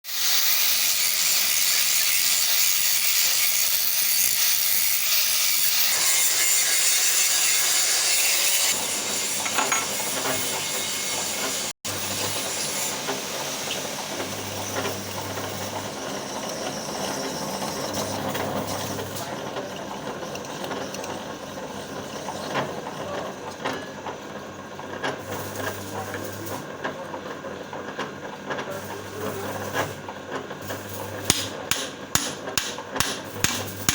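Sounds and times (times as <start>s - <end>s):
welding crackling and sputtering: 25.2s - 26.6s, 30.6s - 33.9s.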